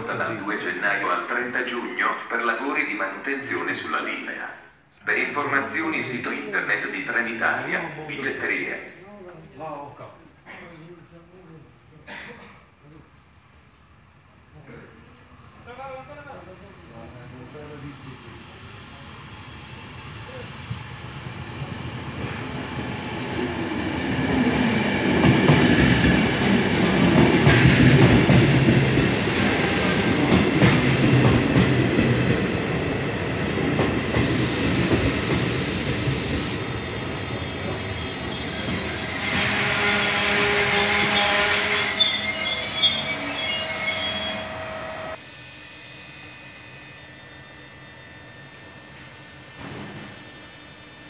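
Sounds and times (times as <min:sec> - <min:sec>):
train wheels rumbling on rails: 0:19.4 - 0:45.2
train brakes squealing: 0:34.0 - 0:51.0.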